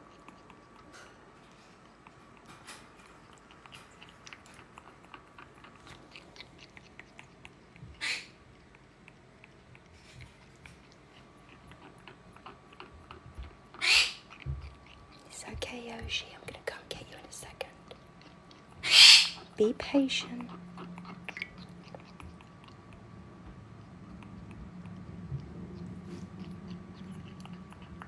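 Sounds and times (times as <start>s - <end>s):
parrot shrieking: 8.0s - 8.4s, 13.8s - 14.3s, 18.8s - 19.5s.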